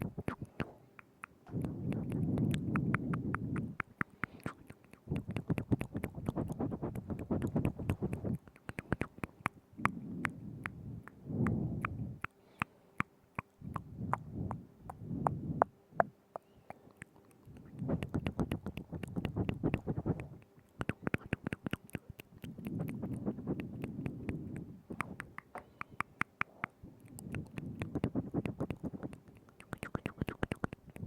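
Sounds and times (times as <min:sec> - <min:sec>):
wet mouth clicks and smacks: 0:00.0 - 0:31.0
low muffled rumbling: 0:01.5 - 0:03.8, 0:09.6 - 0:12.2, 0:13.6 - 0:16.1.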